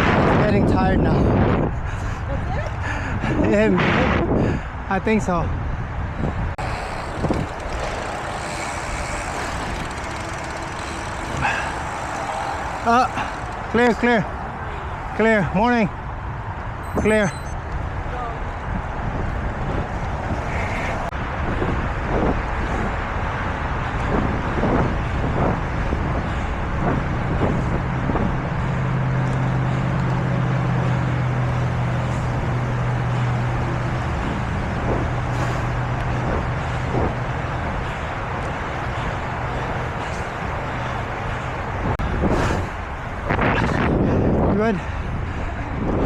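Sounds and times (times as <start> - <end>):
road traffic noise: 0.0 - 46.0
vehicle engine drone: 6.1 - 17.7, 26.0 - 44.0
rushing air of moving bicycle: 6.2 - 14.8, 35.3 - 35.8, 42.0 - 45.8.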